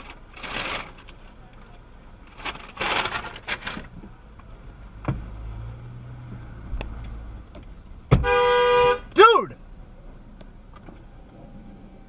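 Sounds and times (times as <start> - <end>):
car rumbling: 0.0 - 12.0
car horn blaring: 8.1 - 9.5.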